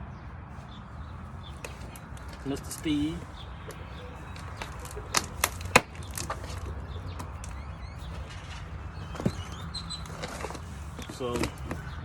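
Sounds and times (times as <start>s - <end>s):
faint bird chirps: 0.7s - 12.0s
dull thump: 3.7s - 11.8s.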